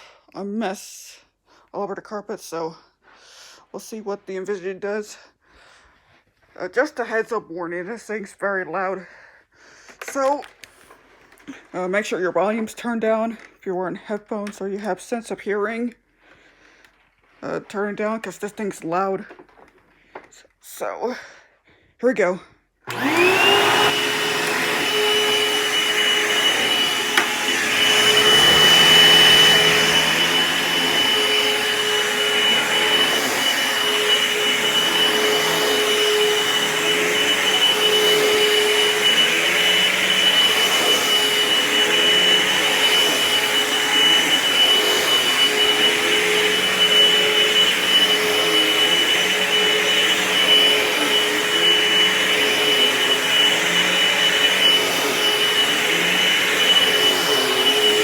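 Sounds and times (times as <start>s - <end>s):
vacuum cleaner running: 22.9s - 58.0s.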